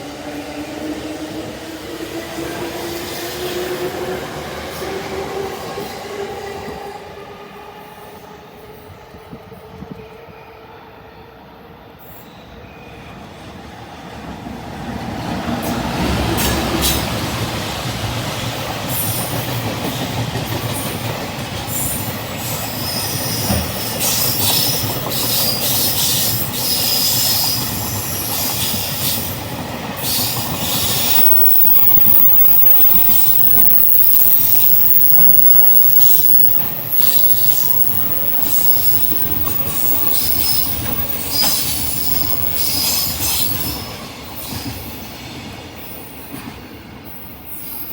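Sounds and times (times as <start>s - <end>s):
electric locomotive passing: 0.0s - 10.1s, 13.0s - 47.9s
wheel flanges squealing: 30.0s - 43.8s.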